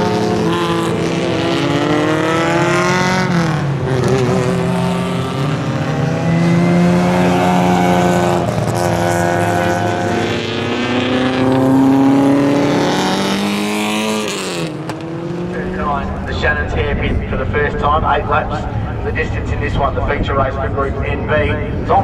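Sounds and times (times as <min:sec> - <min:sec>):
race car engines accelerating: 0:00.0 - 0:22.0.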